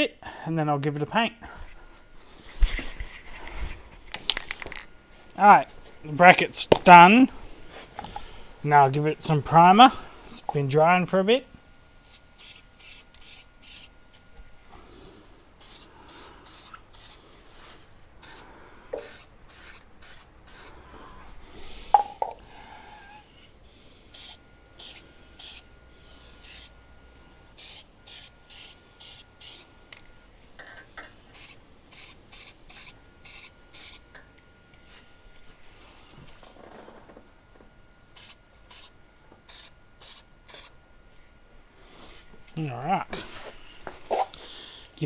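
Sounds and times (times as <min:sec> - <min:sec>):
aerosol can spraying: 0:12.0 - 0:14.0, 0:15.6 - 0:17.2, 0:18.2 - 0:20.8, 0:24.1 - 0:25.7, 0:26.4 - 0:26.8, 0:27.6 - 0:29.7, 0:31.3 - 0:34.0, 0:38.2 - 0:38.9, 0:39.5 - 0:40.7.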